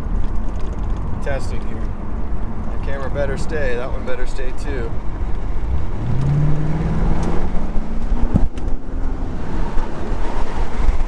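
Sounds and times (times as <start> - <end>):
road and wind noise: 0.0 - 11.0
car engine accelerating: 4.9 - 11.0.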